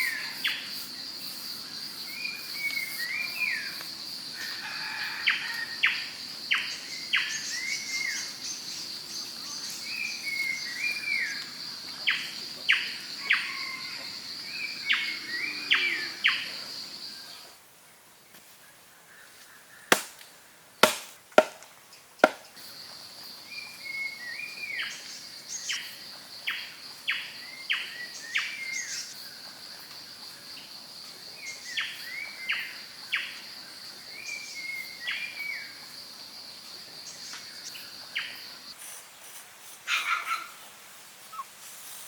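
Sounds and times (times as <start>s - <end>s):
sharp knocks: 20.8s - 22.5s.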